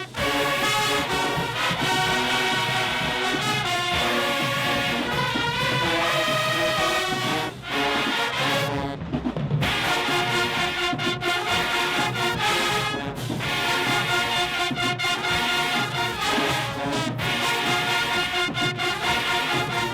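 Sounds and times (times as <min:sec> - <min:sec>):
marching band playing: 0:00.0 - 0:19.9.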